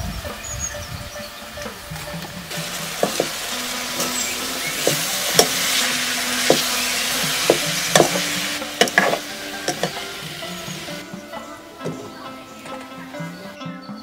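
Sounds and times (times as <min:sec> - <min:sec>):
plantain sizzling in wok: 0:00.2 - 0:11.2
spoon clinking and scraping pan: 0:02.5 - 0:11.0.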